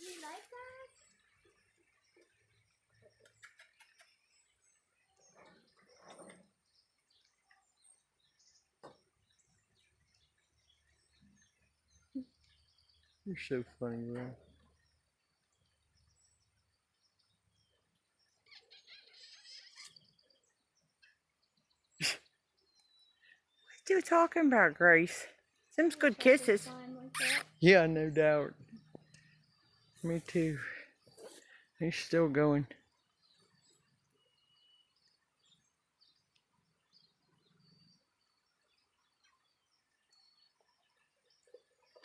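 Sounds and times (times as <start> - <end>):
faint bird chirps: 0.0 - 23.8, 25.3 - 42.0
faint high chirps: 26.6 - 31.6
parrot chattering and smacking: 27.2 - 27.6.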